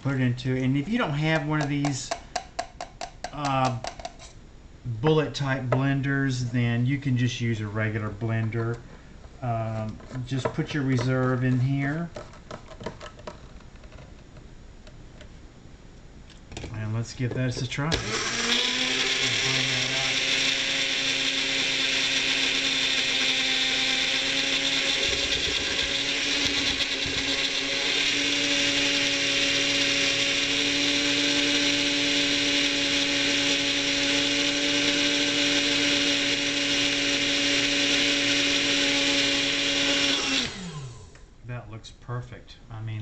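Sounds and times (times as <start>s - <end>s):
blender motor running: 17.9s - 41.2s.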